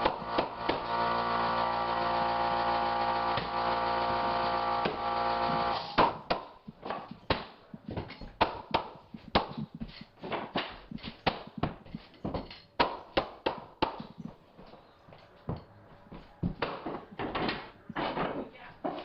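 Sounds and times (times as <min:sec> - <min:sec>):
floorboards being knocked into place: 0:16.4 - 0:19.0.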